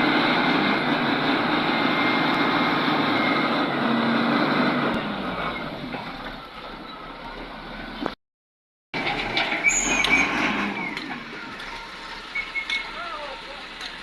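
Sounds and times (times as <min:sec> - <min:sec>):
excavator engine under load: 0:00.0 - 0:08.2, 0:09.0 - 0:14.0
rubble rushing rattle: 0:09.0 - 0:14.0.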